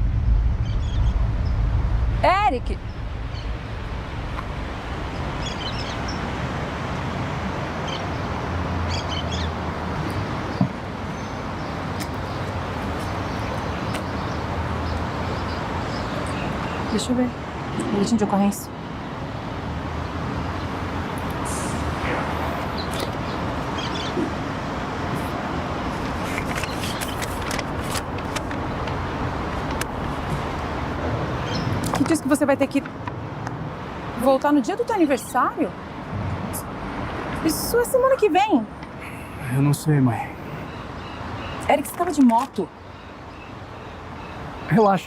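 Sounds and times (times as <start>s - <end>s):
steady rumbling noise: 0.0s - 7.8s, 20.8s - 31.4s
road traffic noise: 0.0s - 45.0s
bird chirps: 5.1s - 6.3s.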